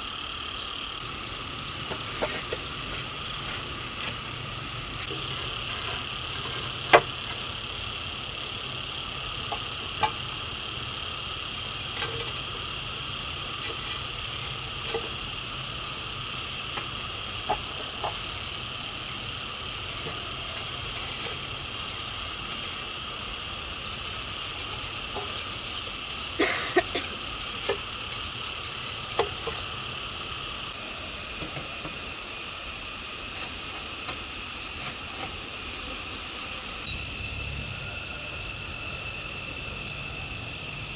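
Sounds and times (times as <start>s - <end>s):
steady high hiss: 0.0s - 40.9s
sharp clicks and knocks: 1.0s - 7.7s, 9.4s - 10.4s, 26.9s - 29.8s.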